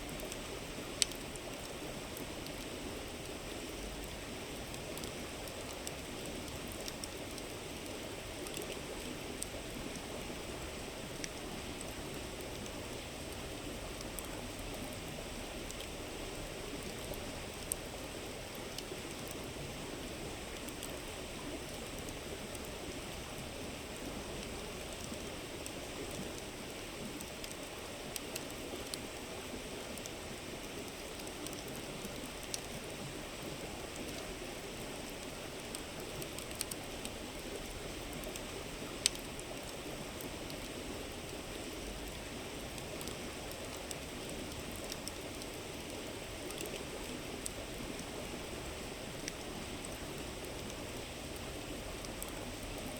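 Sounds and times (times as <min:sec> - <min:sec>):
campfire crackling and popping: 0:00.1 - 0:03.4, 0:33.6 - 0:48.1.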